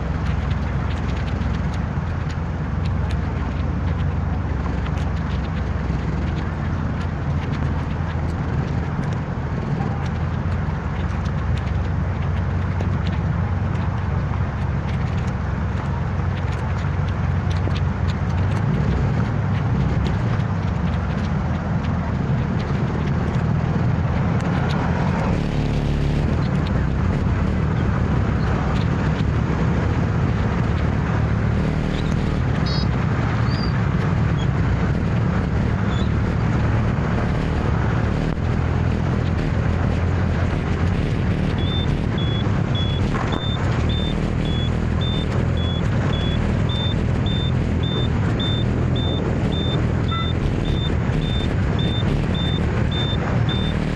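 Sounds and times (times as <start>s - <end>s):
scooter engine and road rumble: 0.0s - 53.9s
short high beeps: 41.2s - 53.9s.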